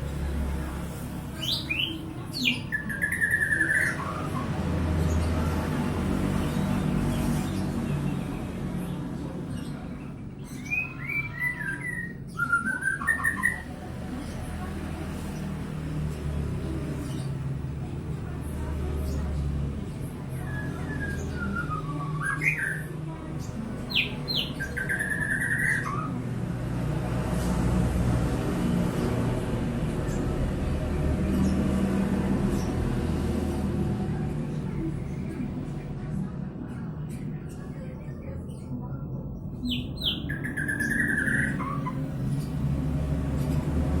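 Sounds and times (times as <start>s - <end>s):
bird singing: 1.4s - 5.2s, 9.6s - 13.7s, 20.4s - 26.2s, 37.1s - 42.6s
bird singing whistled phrases: 10.6s - 13.6s, 20.5s - 22.9s.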